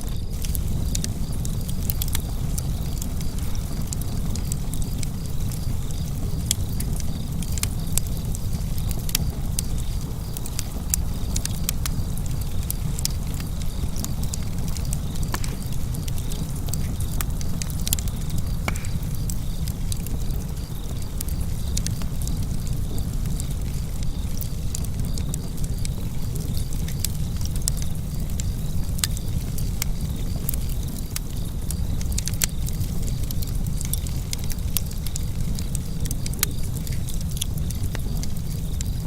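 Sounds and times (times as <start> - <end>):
wood fire crackling: 0.0 - 39.0.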